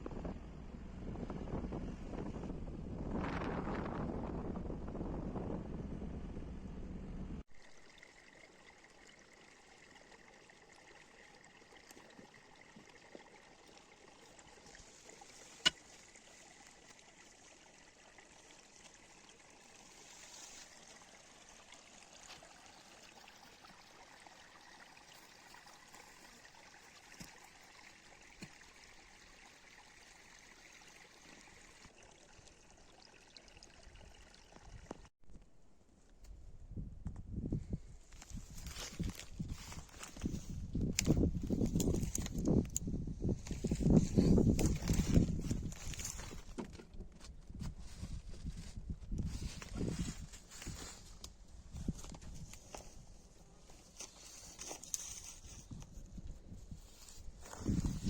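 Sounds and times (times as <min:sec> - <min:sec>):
running water: 0:07.4 - 0:35.1.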